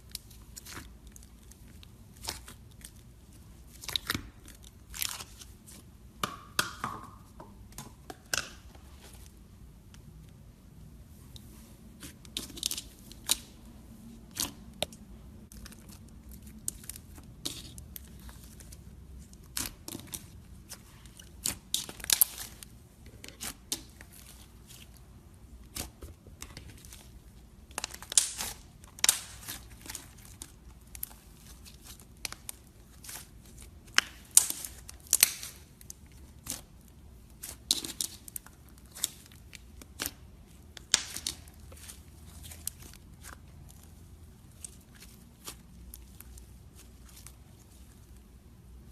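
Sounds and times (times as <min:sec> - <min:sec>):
slime crackling and popping: 0:03.7 - 0:05.8, 0:14.3 - 0:25.0, 0:25.6 - 0:48.1.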